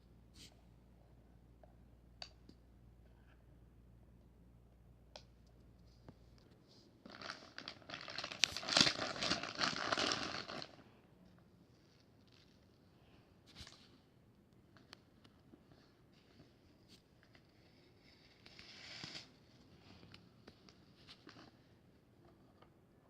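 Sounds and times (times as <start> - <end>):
packaging crumpling: 7.1 - 10.8.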